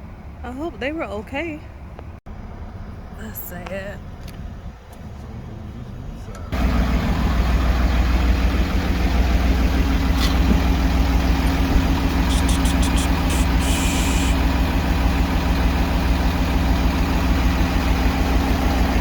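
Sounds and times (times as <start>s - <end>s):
engine droning: 0.0s - 19.0s
short hiss: 12.3s - 14.4s.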